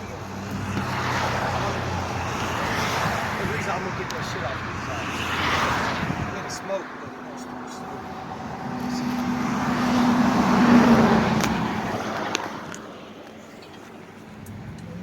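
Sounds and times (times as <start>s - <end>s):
car driving past: 4.6s - 12.8s.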